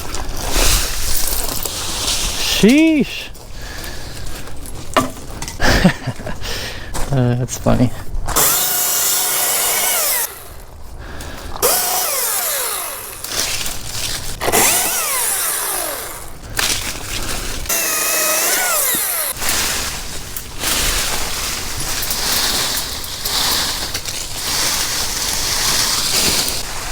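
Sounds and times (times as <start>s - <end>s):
chainsaw revving: 8.3s - 10.6s, 11.6s - 16.9s, 17.6s - 19.9s.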